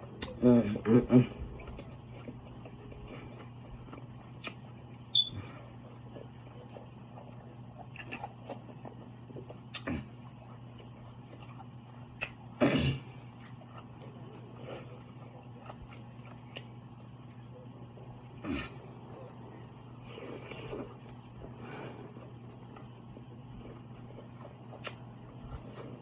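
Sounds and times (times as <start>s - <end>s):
person chewing food: 1.3s - 26.0s.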